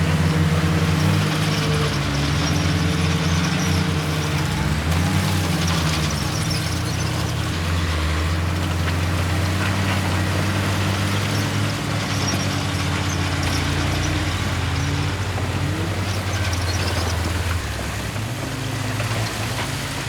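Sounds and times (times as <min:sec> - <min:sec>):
heavy diesel engine under load: 0:00.0 - 0:20.0.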